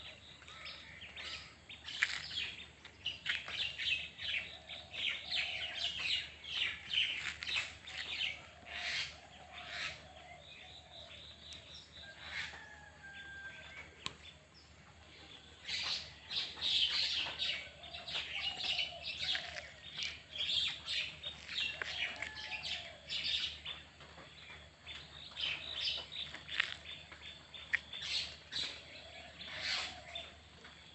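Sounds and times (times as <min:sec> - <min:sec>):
birds chirping: 0:00.0 - 0:30.9
low drawn-out bird calls: 0:15.2 - 0:30.9.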